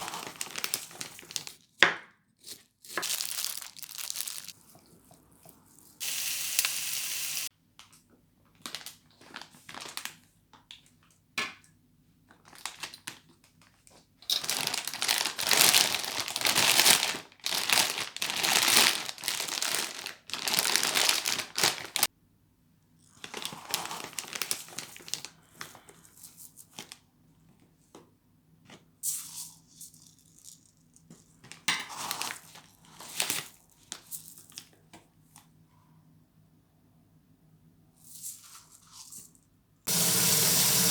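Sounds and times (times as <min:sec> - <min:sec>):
material crinkling and tearing: 0:00.0 - 0:01.6, 0:02.5 - 0:04.8, 0:14.4 - 0:22.1, 0:23.2 - 0:25.3.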